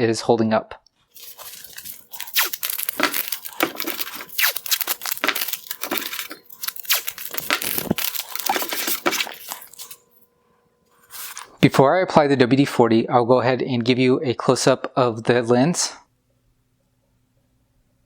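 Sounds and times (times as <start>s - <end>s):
tape and paper tearing and crinkling: 1.1s - 10.1s, 11.1s - 11.5s.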